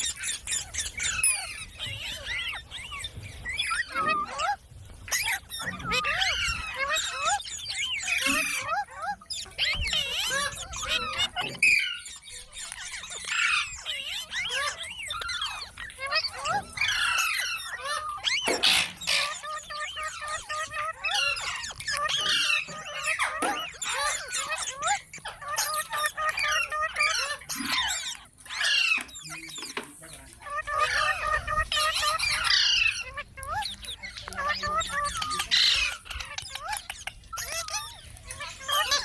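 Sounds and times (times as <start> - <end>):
parrot chirping and squeaking: 0.0 - 39.0
parrot harsh squawk: 0.0 - 39.0.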